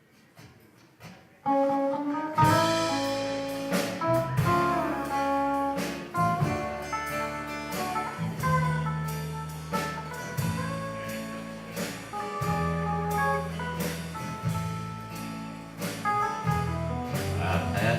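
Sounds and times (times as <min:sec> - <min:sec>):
live country band playing: 0:01.5 - 0:17.9
guitar line: 0:02.2 - 0:17.9.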